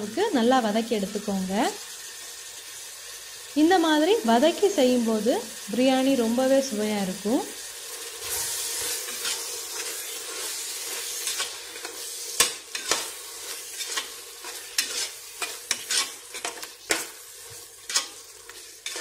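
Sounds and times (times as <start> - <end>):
meat sizzling in oil: 0.0 - 19.0
metal ladle scraping a pot: 8.2 - 19.0.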